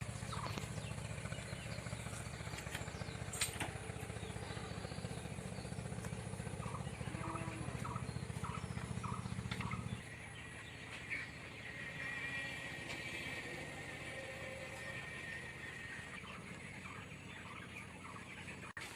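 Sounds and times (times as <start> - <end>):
low motor-like rumble: 0.0 - 18.9
chickens clucking: 6.0 - 18.9.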